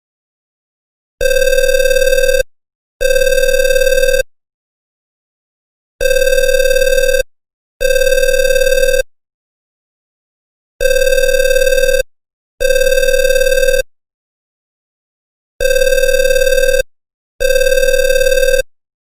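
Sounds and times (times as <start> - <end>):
telephone ringing: 1.2 - 4.3, 6.0 - 9.0, 10.8 - 13.9, 15.6 - 18.7.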